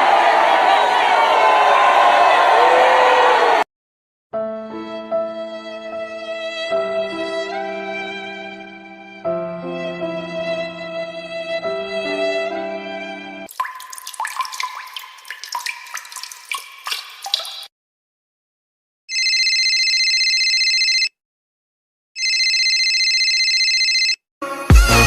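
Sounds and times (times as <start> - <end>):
water dripping and bubbling: 13.5 - 17.7
electronic ringing tone: 19.1 - 21.1, 22.2 - 24.2.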